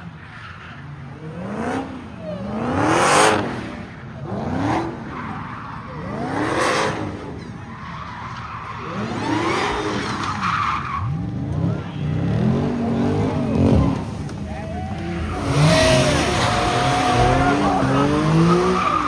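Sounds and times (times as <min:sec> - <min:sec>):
car engine revving: 0:11.0 - 0:19.0
tyres squealing: 0:13.4 - 0:19.0.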